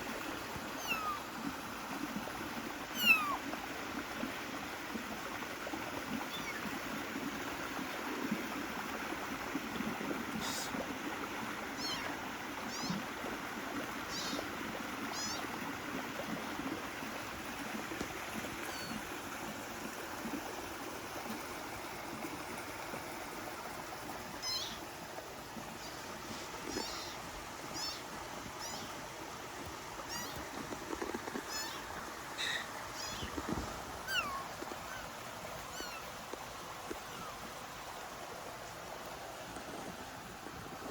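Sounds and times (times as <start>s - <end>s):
kittens mewing: 0.8s - 1.2s, 3.0s - 3.4s, 26.7s - 27.2s, 30.1s - 30.4s, 31.4s - 33.4s, 34.0s - 35.1s, 35.7s - 36.0s.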